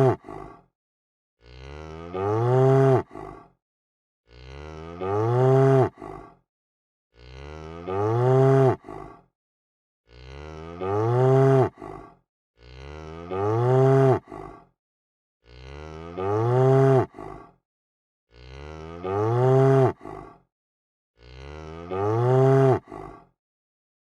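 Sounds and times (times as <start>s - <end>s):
cow mooing: 1.4s - 3.1s, 4.3s - 6.0s, 7.2s - 8.9s, 10.1s - 11.8s, 12.6s - 14.3s, 15.5s - 17.1s, 18.3s - 20.0s, 21.2s - 23.0s.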